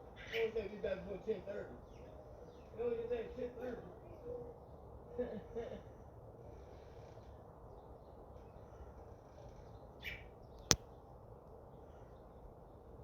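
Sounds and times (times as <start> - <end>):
low outdoor background: 0.0 - 13.0.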